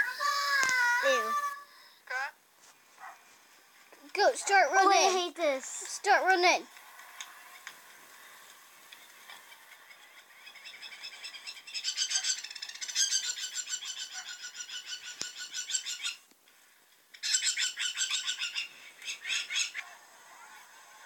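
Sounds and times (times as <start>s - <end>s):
bird chattering loudly: 10.5s - 16.2s.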